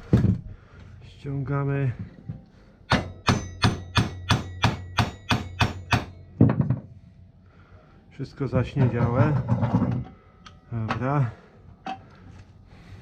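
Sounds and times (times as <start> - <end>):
hammer striking metal: 2.9 - 6.6.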